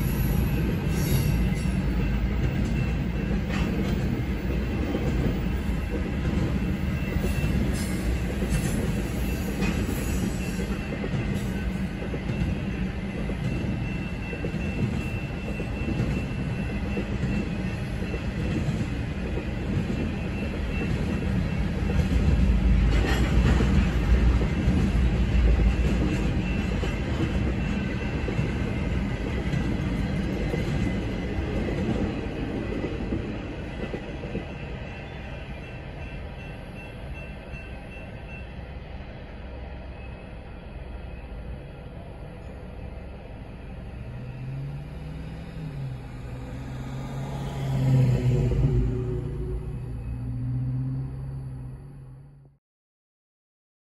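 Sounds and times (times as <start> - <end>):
freight cars rolling on rails: 0.0 - 38.4.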